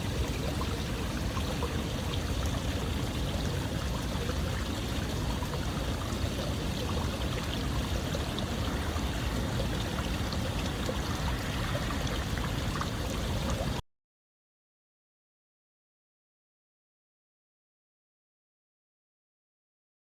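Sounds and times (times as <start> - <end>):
small water splashes and trickles: 0.0 - 13.8
water rushing: 0.0 - 13.8.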